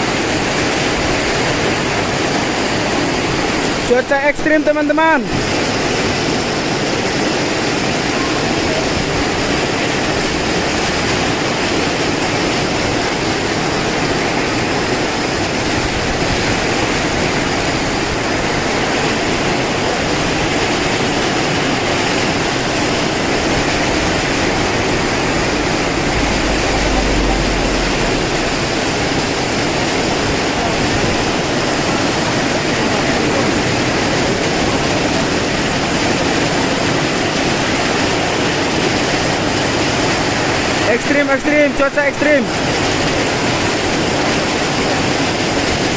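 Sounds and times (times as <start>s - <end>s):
heavy rain pouring: 0.0s - 45.9s
wind gust rumble: 5.4s - 35.2s.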